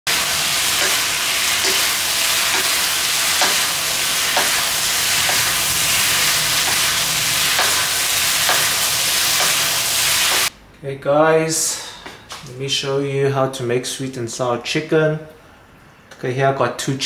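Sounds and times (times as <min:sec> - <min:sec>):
food sizzling in a wok: 0:00.1 - 0:10.5
spatula knocking against pan: 0:03.4 - 0:03.6.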